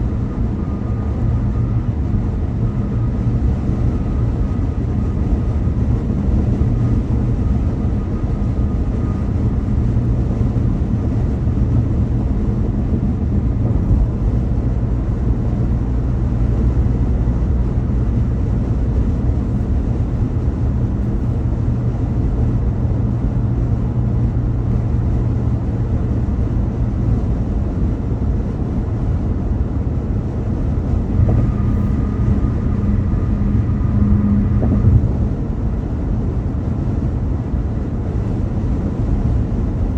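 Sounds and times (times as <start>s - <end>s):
road and engine rumble: 0.0s - 39.9s
faint high whine: 30.0s - 36.0s.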